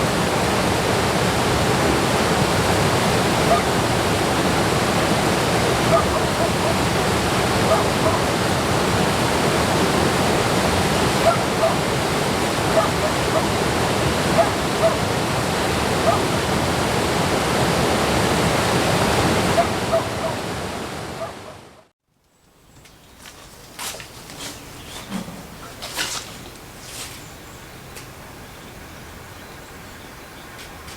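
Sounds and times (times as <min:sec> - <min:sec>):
flowing water rushing: 0:00.0 - 0:21.8.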